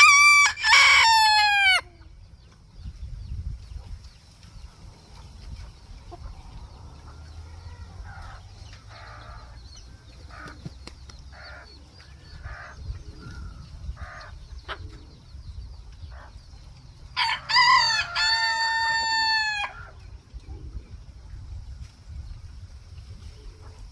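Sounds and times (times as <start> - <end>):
rooster crowing: 0.0 - 1.8, 17.2 - 19.8
faint chicken clucks: 1.3 - 17.1, 23.1 - 23.9.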